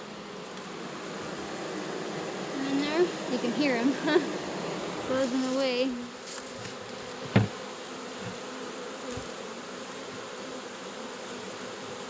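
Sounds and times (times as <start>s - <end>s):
honey bees buzzing: 0.0s - 12.0s
sharp tap: 7.3s - 7.5s.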